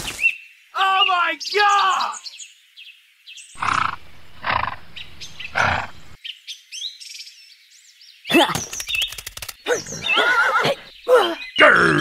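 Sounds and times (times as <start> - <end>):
rough animal calls: 3.6 - 6.2.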